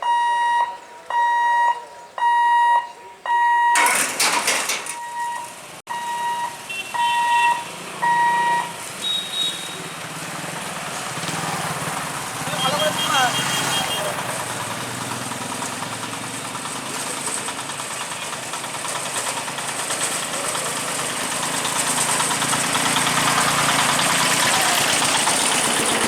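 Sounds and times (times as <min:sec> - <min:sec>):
crossing alarm beeping: 0:00.0 - 0:10.1.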